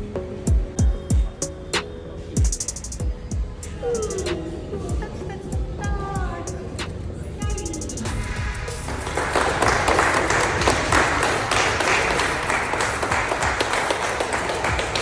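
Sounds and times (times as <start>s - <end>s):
people clapping: 8.1s - 15.0s.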